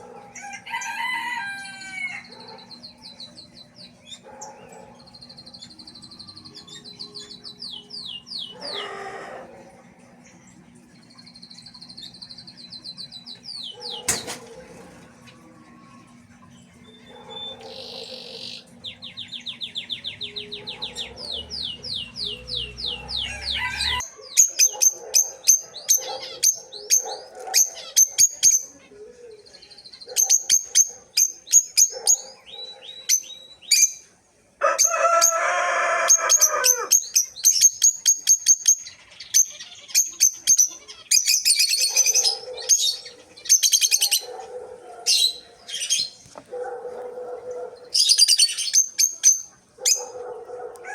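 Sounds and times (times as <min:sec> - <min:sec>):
birds chirping: 0:00.0 - 0:50.9
birds trilling: 0:00.0 - 0:50.9
harsh bird call: 0:20.2 - 0:24.0.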